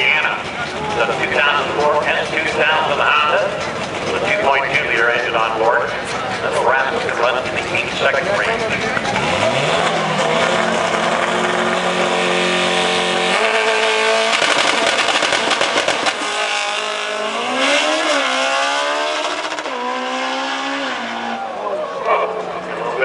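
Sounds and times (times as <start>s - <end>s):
car engine revving hard: 6.6s - 21.6s.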